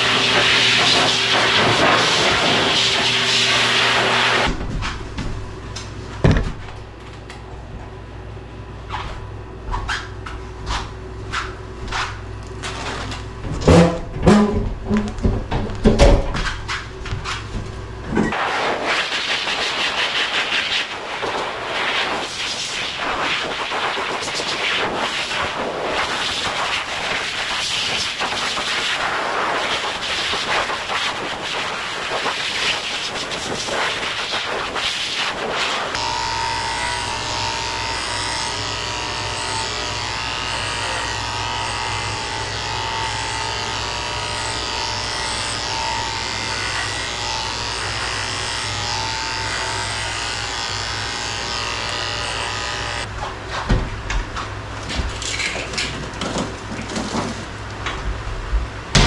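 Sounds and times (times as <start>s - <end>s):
electric grooming tool whining: 0.0s - 4.5s, 35.1s - 53.1s.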